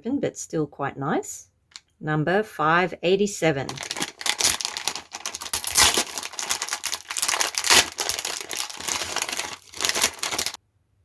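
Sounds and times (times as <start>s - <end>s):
plastic bag crinkling and tearing: 3.7s - 10.6s.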